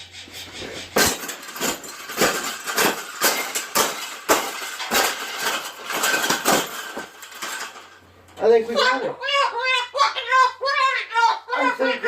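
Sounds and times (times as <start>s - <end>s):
cage rubbing and scraping: 0.0s - 8.2s
sharp knocks: 0.9s - 7.1s.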